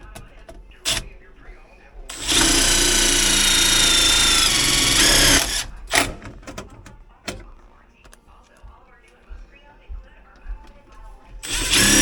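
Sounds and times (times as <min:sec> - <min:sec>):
cordless drill driving screw: 0:00.8 - 0:01.2, 0:02.1 - 0:06.2, 0:11.4 - 0:12.0.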